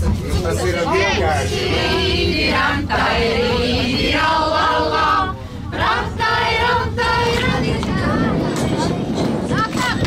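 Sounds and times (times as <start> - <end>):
choir singing long notes: 1.4 - 7.6.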